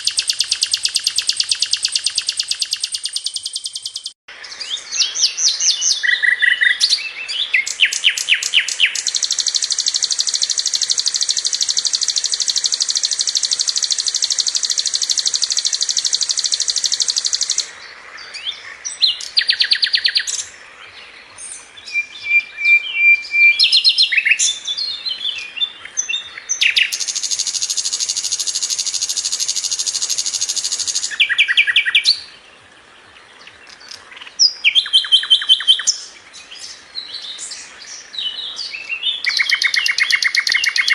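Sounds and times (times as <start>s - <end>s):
bird quick chirps: 0.0s - 17.7s, 26.1s - 32.3s, 38.6s - 40.9s
bird high rolling trill: 7.8s - 17.7s, 27.0s - 32.0s.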